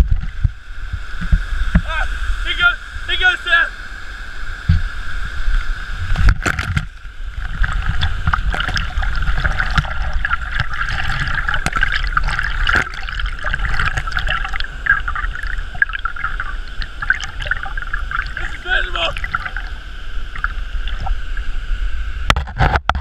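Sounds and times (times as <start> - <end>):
steady low rumble: 0.0 - 22.3
water splashing from swimming: 4.6 - 21.7.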